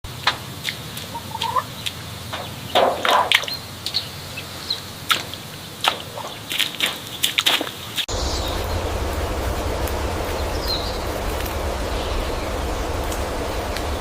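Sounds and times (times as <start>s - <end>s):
chickens clucking: 0.3s - 8.0s.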